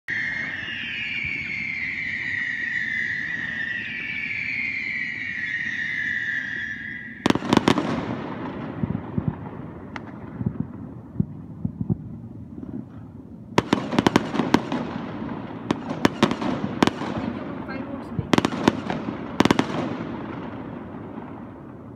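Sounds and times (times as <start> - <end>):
firework whistling: 0.1 - 11.0, 13.6 - 21.9
firework bangs: 0.1 - 21.9
crackling pops: 9.1 - 13.0.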